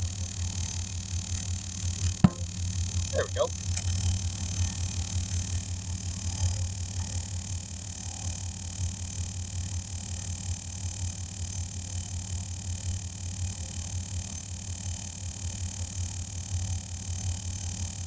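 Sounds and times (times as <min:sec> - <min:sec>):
air compressor pulsing hum: 0:00.0 - 0:09.9.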